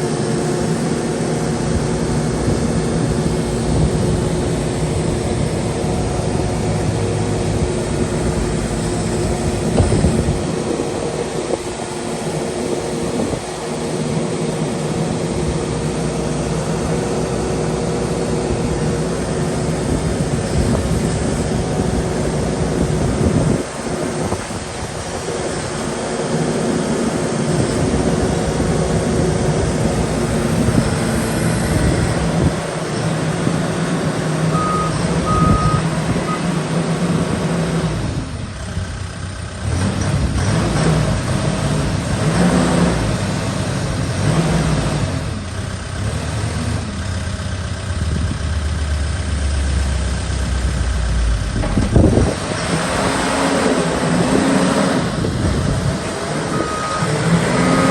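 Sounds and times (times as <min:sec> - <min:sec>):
diesel engine revving: 0:00.0 - 0:57.9
short beeps: 0:34.5 - 0:36.5, 0:56.4 - 0:57.9.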